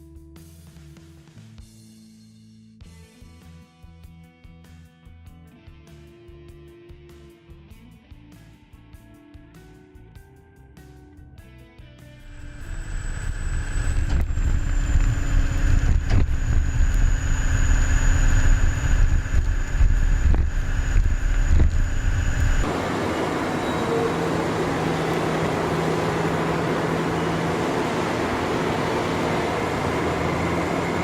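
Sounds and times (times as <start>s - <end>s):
high whine: 12.2s - 31.0s
bulldozer diesel engine rumble: 12.3s - 31.0s
hissing machine noise: 12.3s - 31.0s.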